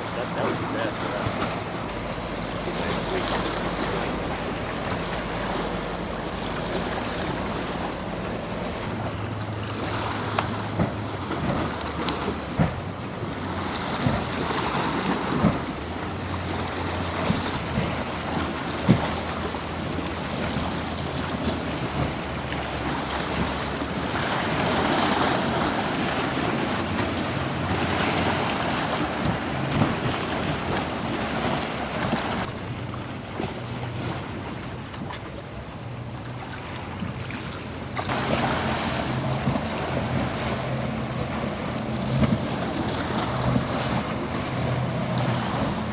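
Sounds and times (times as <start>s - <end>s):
boat engines humming: 0.0s - 45.9s
waves breaking: 0.0s - 45.9s
wind buffeting microphone: 36.8s - 45.9s.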